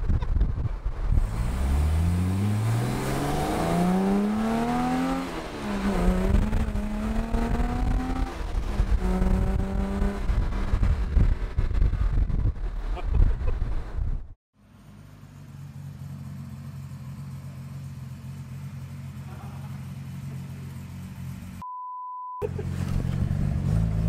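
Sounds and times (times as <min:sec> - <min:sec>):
car driving noise: 0:00.0 - 0:21.6, 0:22.4 - 0:24.0
car engine idling: 0:14.6 - 0:21.6
censor beep tone: 0:21.6 - 0:22.4.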